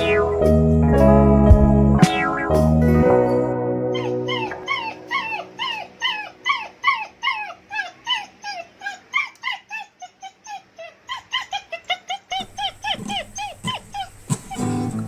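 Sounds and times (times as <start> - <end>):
background music: 0.0 - 6.4
puppies crying: 3.9 - 15.0.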